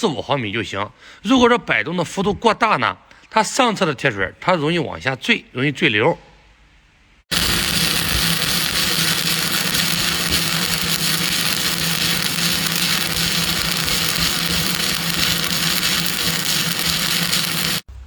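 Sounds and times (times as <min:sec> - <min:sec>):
welding arc hissing and crackling: 0:07.3 - 0:17.9
low hum: 0:07.3 - 0:18.0.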